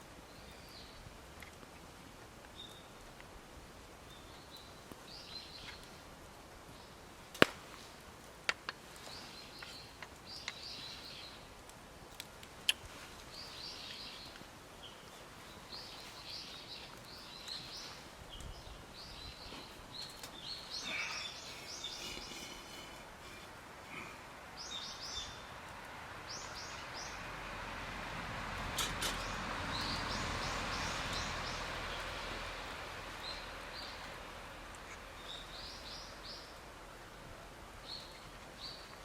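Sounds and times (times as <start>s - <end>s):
small birds chirping: 4.0s - 6.1s, 9.0s - 11.5s, 12.1s - 27.3s, 28.6s - 36.8s, 37.7s - 39.0s
sharp snaps: 7.3s - 7.8s, 11.7s - 14.4s.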